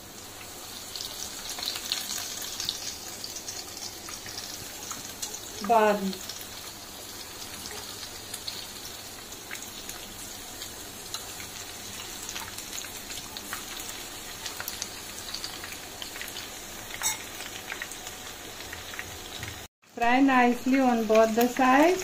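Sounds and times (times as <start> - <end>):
sharp oil crackle: 0.0 - 19.7
chicken frying in oil: 0.0 - 22.0.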